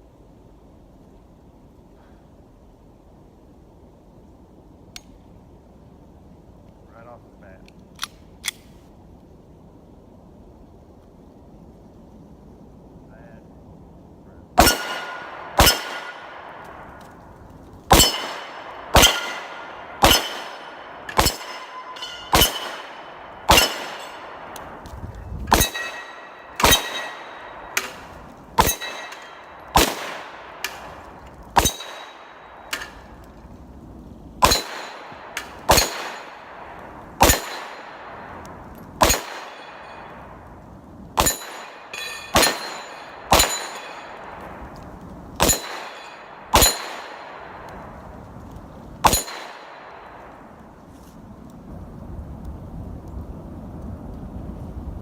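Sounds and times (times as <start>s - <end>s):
bullet hitting ringing steel plate: 14.6s - 16.2s, 17.9s - 24.4s, 25.5s - 30.9s, 31.6s - 33.0s, 34.4s - 36.5s, 37.2s - 37.9s, 41.2s - 44.4s, 45.4s - 47.3s, 49.0s - 49.8s
pistol shots: 14.6s - 16.9s, 17.9s - 24.7s, 25.5s - 31.0s, 31.6s - 33.0s, 34.4s - 38.3s, 39.0s - 40.0s, 41.2s - 44.5s, 45.4s - 47.7s, 49.0s - 50.2s.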